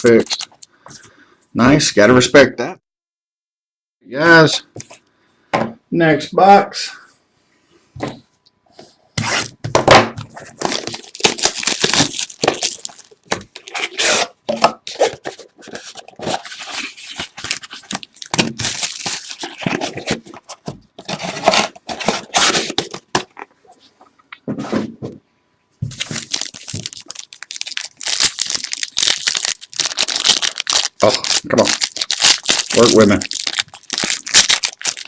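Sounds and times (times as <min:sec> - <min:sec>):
plastic and foil wrapping tearing: 0:00.0 - 0:00.7, 0:10.4 - 0:20.2, 0:25.9 - 0:35.0.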